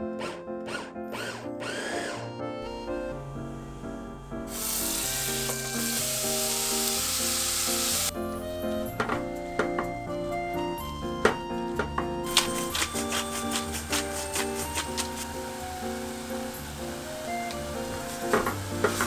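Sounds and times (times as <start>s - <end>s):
background music: 0.0s - 19.0s
small electric motor spinning: 0.7s - 2.2s, 4.5s - 8.1s.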